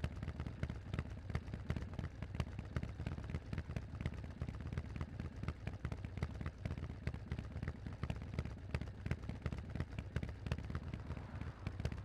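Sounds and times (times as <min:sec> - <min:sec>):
motorcycle engine idling: 0:07.3 - 0:12.0.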